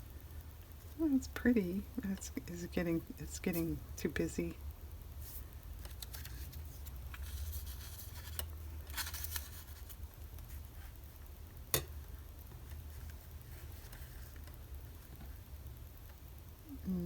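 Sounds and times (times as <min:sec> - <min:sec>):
low steady hum: 0:00.0 - 0:17.0
paper rustling: 0:05.2 - 0:11.0.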